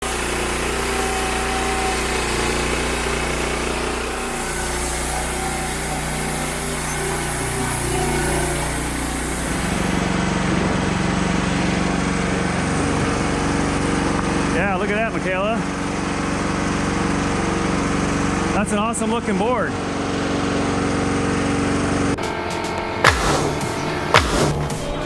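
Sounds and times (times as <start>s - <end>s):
saw blade hissing through wood: 0.0s - 10.2s
band sawmill engine running: 0.0s - 25.0s.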